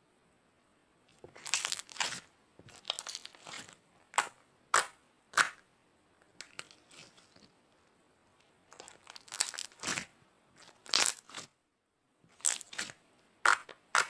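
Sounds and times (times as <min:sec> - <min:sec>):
slime squishing and popping: 0:01.3 - 0:05.6, 0:08.7 - 0:11.5, 0:12.4 - 0:14.0.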